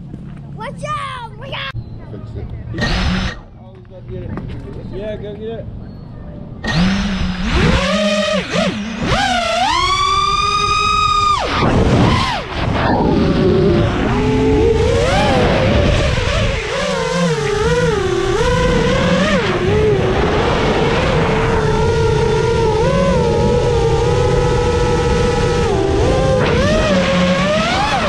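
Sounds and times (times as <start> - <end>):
quadcopter motors whining: 2.7 - 3.5, 6.6 - 28.0.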